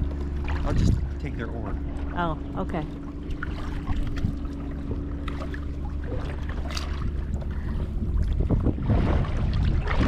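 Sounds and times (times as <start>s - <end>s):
wind on microphone: 0.0s - 1.3s, 3.4s - 10.0s
kayak paddle splashing: 0.0s - 10.0s.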